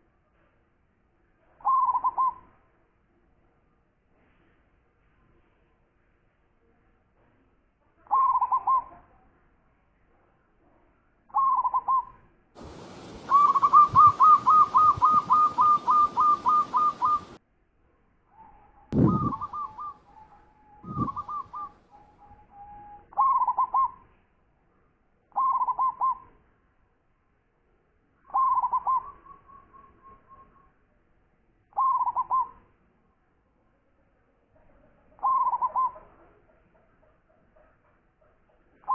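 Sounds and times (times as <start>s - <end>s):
dove cooing: 1.6s - 2.4s, 8.1s - 8.9s, 13.2s - 17.4s, 19.0s - 22.0s, 22.8s - 24.0s, 25.4s - 26.2s, 28.3s - 29.1s, 31.8s - 32.5s, 35.2s - 36.1s
hiss: 12.6s - 14.5s.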